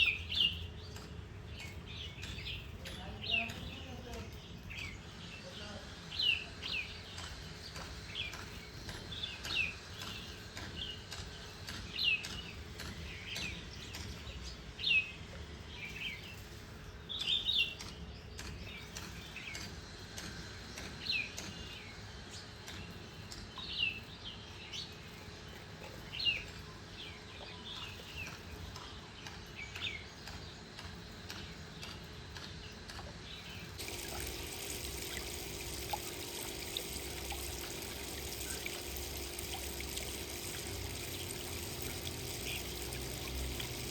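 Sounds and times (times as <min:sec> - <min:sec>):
steady hiss: 0:33.8 - 0:43.9.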